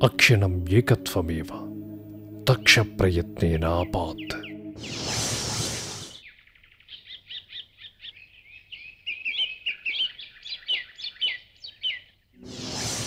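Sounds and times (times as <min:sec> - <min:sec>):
bird chirping: 0:03.6 - 0:12.9.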